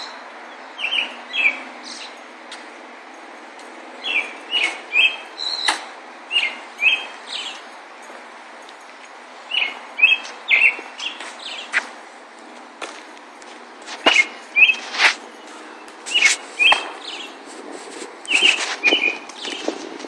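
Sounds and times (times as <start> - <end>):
songbird chirping: 0.0 - 17.6, 18.2 - 19.8
outdoor background noise: 0.0 - 20.0.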